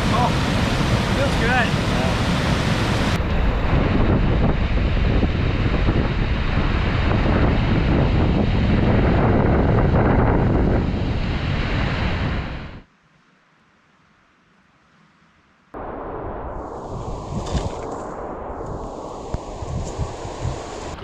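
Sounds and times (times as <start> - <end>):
whitewater rushing: 0.0 - 3.2
wind buffeting microphone: 0.0 - 12.8, 16.3 - 21.0.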